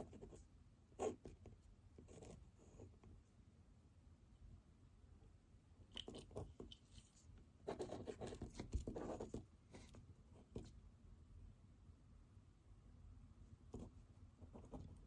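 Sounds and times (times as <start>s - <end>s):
pen scratching on paper: 0.0s - 0.4s, 1.0s - 3.1s, 7.7s - 10.7s, 13.7s - 15.0s.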